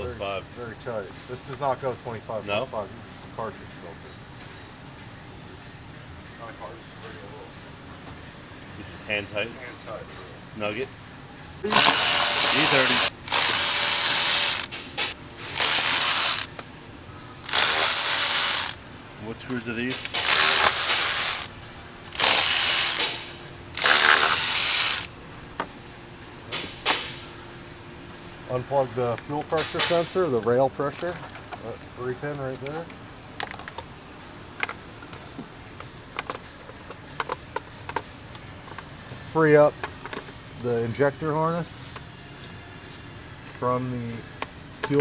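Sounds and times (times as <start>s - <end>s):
power ratchet running: 11.6s - 16.6s, 17.4s - 18.8s, 19.5s - 25.2s.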